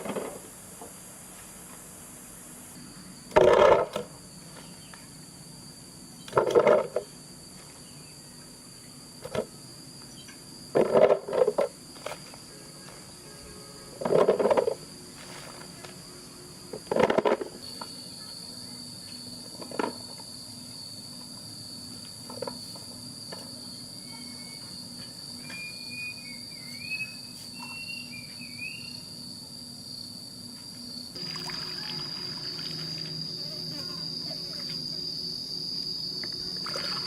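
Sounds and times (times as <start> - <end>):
insect drone: 0.0 - 37.0
short chirping calls: 25.4 - 29.0.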